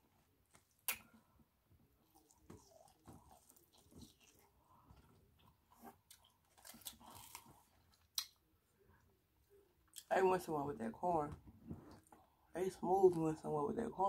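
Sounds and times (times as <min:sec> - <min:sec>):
chewing corn with soft crunches: 0:00.1 - 0:10.1.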